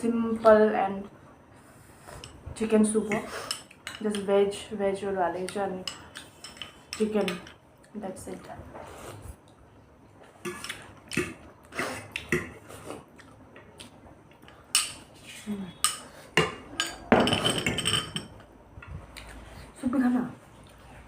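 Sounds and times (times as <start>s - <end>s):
cutlery clinking on plates: 5.9s - 7.6s, 15.8s - 18.4s.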